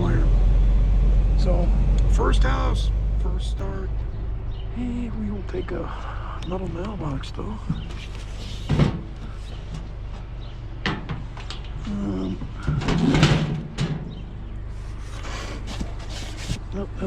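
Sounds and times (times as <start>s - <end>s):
low rumble: 0.0s - 7.7s
junk knocking and rattling: 6.7s - 14.7s.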